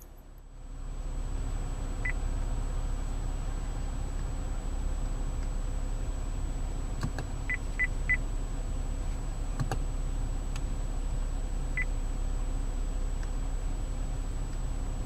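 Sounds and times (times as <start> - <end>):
low cabin hum: 0.0 - 15.0.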